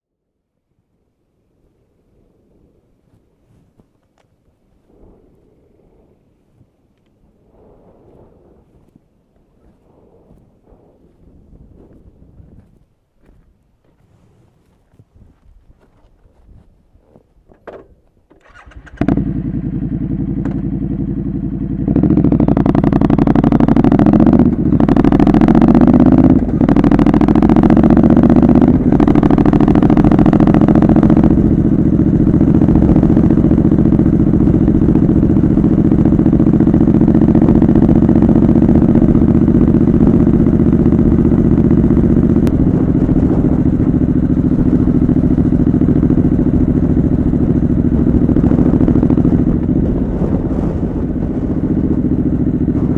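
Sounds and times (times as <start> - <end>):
motorcycle engine revving: 18.4 - 52.9.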